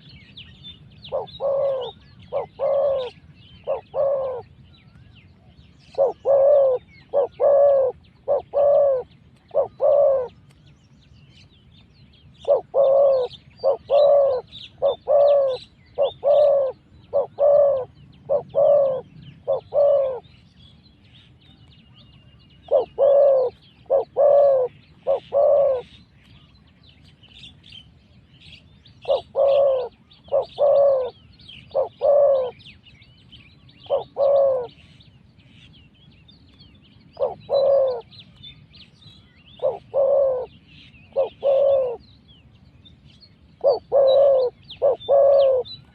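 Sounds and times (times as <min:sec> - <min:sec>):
small birds chirping: 0:00.0 - 0:45.9
doves cooing: 0:01.1 - 0:04.5, 0:05.9 - 0:10.4, 0:12.4 - 0:20.2, 0:22.6 - 0:26.0, 0:29.0 - 0:32.6, 0:33.8 - 0:34.9, 0:37.2 - 0:38.1, 0:39.6 - 0:42.0, 0:43.6 - 0:45.9.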